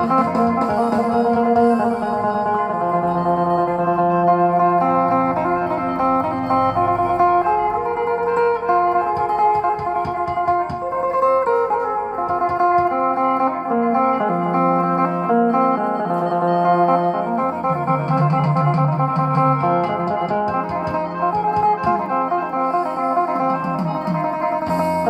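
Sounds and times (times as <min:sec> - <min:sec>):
backing music track: 0:00.0 - 0:25.0
lute picked melody: 0:00.0 - 0:25.0.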